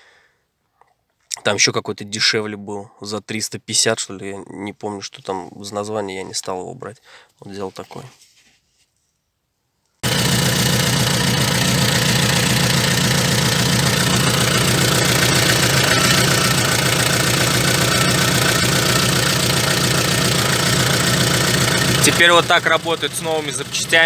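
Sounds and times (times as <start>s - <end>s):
car engine idling: 10.0s - 24.0s.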